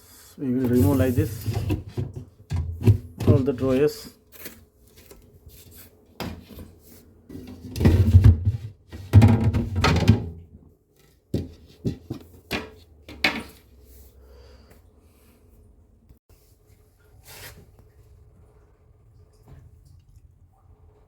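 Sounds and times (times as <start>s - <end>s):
drawers knocking: 7.6s - 10.4s.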